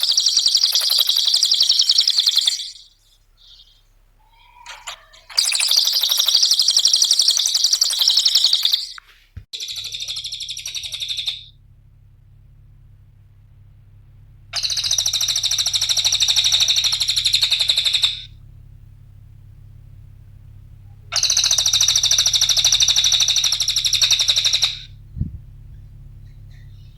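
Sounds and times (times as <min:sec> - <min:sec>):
songbird chattering trills: 0:00.0 - 0:11.5, 0:14.6 - 0:18.3, 0:21.0 - 0:26.9.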